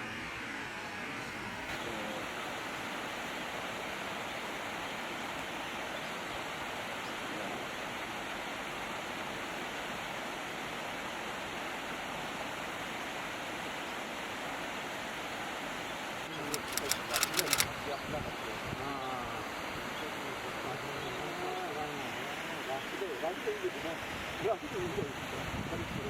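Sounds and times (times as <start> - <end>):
steady rushing hiss: 16.4 - 17.7.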